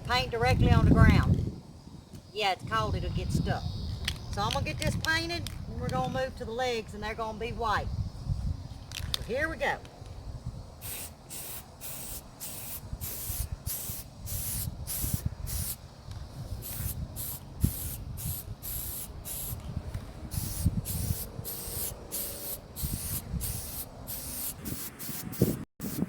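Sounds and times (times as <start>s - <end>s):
spray can hissing in spurts: 10.8s - 15.8s, 16.6s - 19.6s, 20.3s - 26.0s.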